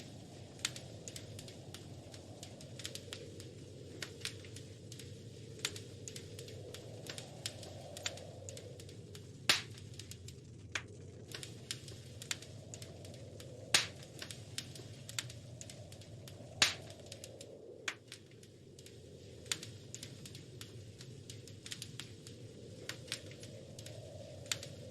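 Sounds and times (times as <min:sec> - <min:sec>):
loud fire pops: 0:00.0 - 0:24.9
wood fire crackling: 0:00.0 - 0:24.9.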